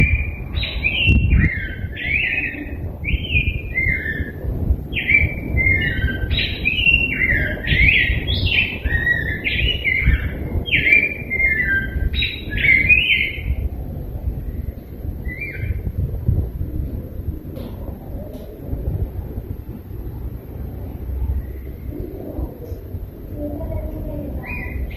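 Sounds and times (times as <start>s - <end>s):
bird singing warbled song: 0.0s - 16.4s, 21.2s - 22.9s, 23.8s - 24.9s
low background rumble: 0.0s - 24.9s.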